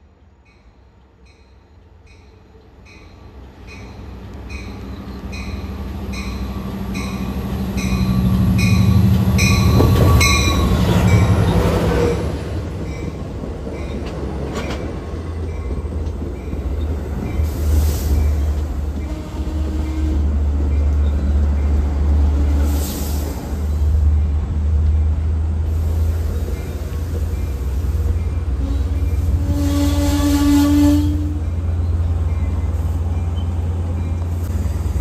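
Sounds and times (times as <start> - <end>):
diesel locomotive engine drone: 0.0 - 35.0
train bell ringing: 0.5 - 11.4.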